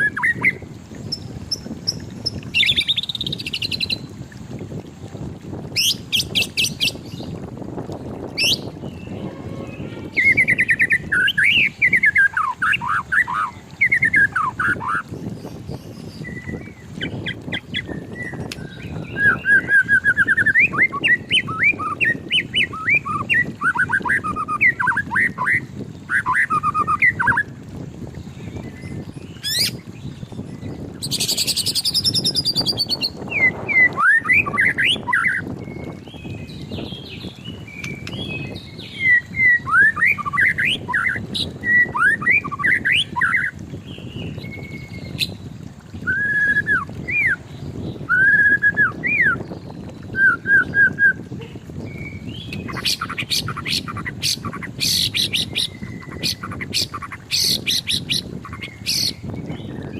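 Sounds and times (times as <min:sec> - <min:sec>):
bird singing whistled notes: 0:08.4 - 0:15.0, 0:15.8 - 0:27.4, 0:30.6 - 0:45.4, 0:46.0 - 0:59.9
high-pitched bird trilling: 0:08.4 - 0:15.1, 0:29.4 - 0:29.8, 0:52.4 - 0:59.3.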